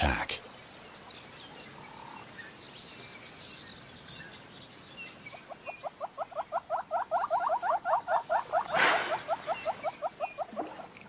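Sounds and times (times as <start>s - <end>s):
faint high bird chirps: 0.4s - 10.9s
rapid rising animal call notes: 6.1s - 10.8s.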